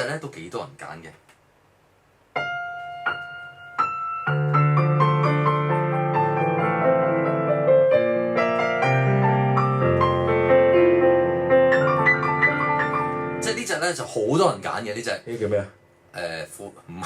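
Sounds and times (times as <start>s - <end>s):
piano playing chords: 2.3s - 14.9s.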